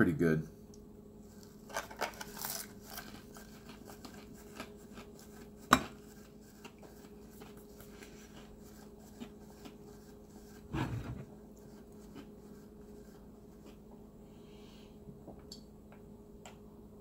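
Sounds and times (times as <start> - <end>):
low steady hum: 0.0 - 17.0
man chewing food: 1.2 - 14.2.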